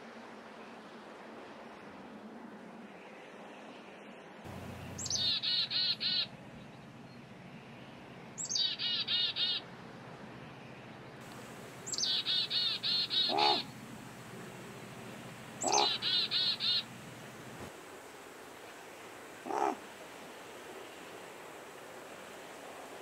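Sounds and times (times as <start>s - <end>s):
lower bird call: 4.5s - 6.3s, 11.8s - 13.7s, 15.6s - 16.9s, 19.4s - 19.8s
songbird singing: 4.5s - 7.8s, 8.4s - 9.6s, 10.4s - 17.4s.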